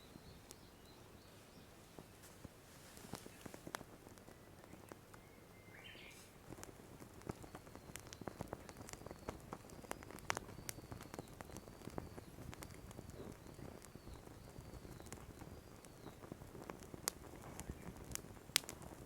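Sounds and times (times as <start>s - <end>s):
oil frying with crackles and pops: 0.0s - 19.0s.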